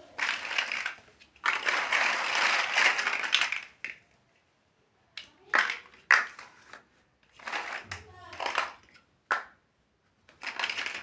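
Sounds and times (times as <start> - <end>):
plastic bricks rattling: 0.1 - 4.0, 7.3 - 9.4, 10.3 - 11.0
plastic bricks clicking: 0.2 - 4.0, 7.4 - 9.5, 10.3 - 11.0.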